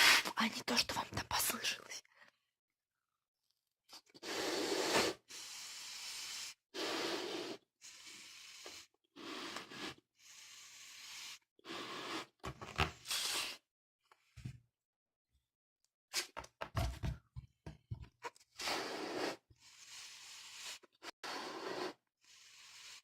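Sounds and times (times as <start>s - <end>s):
breaths blowing up balloon: 4.0s - 13.6s, 18.5s - 23.0s.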